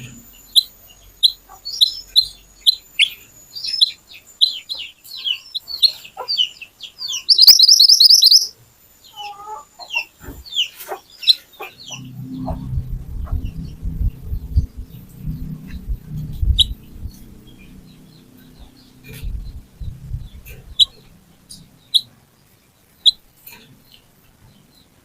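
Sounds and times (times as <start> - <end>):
songbird chirping and trilling: 0.0 - 25.0
low rumble: 11.7 - 22.0.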